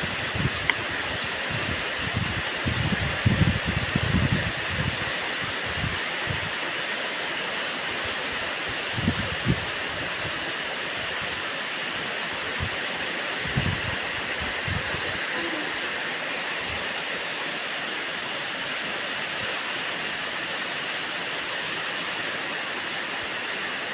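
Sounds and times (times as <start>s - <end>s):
steady rain falling: 0.0s - 23.9s.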